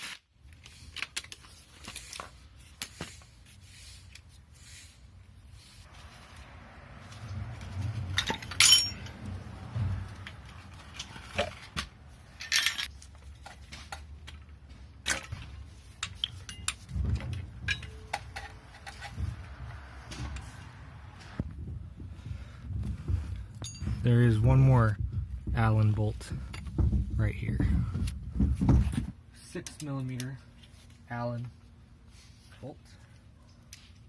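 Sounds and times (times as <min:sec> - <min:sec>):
wrenches clinking against metal: 0:07.9 - 0:09.4, 0:10.1 - 0:13.9, 0:15.0 - 0:19.3.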